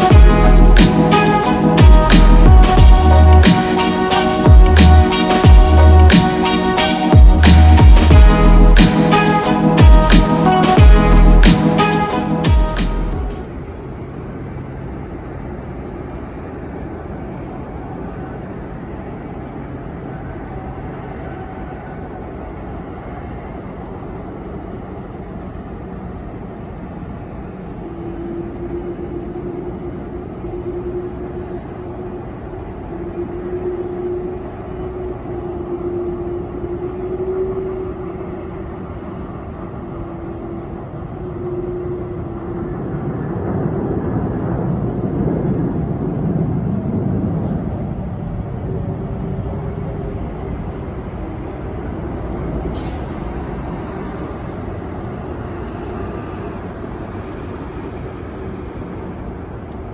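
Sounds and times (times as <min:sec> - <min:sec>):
jet engines rumbling: 0:00.0 - 0:33.5, 0:36.4 - 0:59.9.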